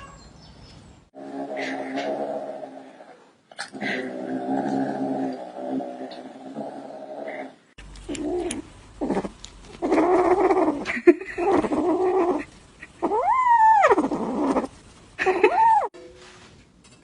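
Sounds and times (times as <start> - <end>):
cat meowing and yowling: 0.0 - 0.2, 13.0 - 14.2, 15.4 - 16.0.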